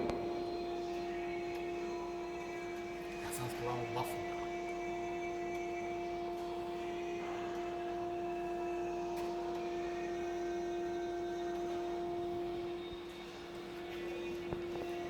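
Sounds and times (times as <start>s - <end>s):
electric furnace hum: 0.0s - 15.0s.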